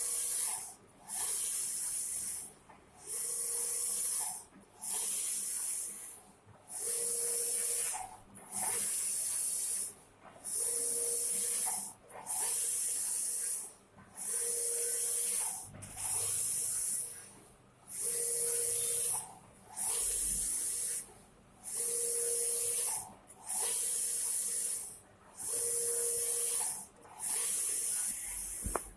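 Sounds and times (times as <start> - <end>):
printer carriage sweeping hiss: 17.9 - 21.0, 21.6 - 28.9.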